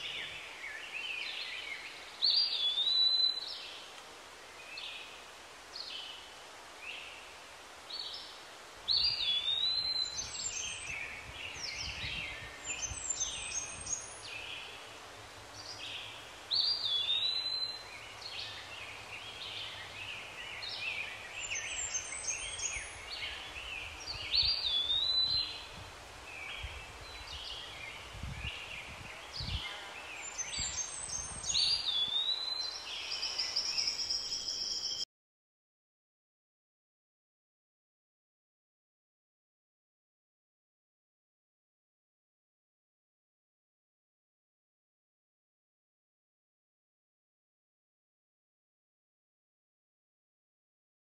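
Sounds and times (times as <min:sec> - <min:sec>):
birds calling and chattering: 0:08.9 - 0:35.0.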